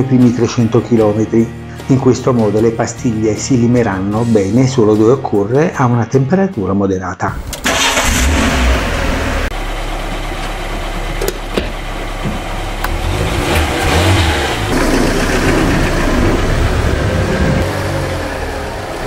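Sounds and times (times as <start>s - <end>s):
car engine idling: 7.4s - 19.0s.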